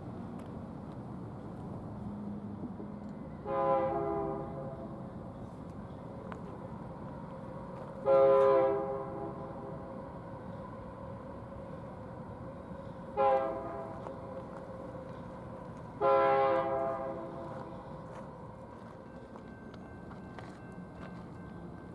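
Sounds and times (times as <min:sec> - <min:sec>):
train rumbling: 0:00.0 - 0:21.9
locomotive air horn blasts: 0:03.4 - 0:05.0, 0:08.0 - 0:09.7, 0:13.1 - 0:14.0, 0:16.0 - 0:17.6.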